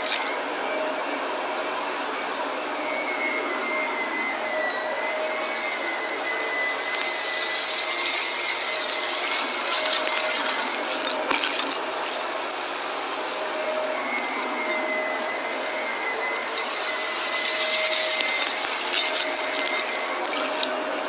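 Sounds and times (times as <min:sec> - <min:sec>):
debris rattling up nozzle: 0:00.0 - 0:00.3, 0:04.8 - 0:21.0
vacuum cleaner running: 0:00.0 - 0:21.0.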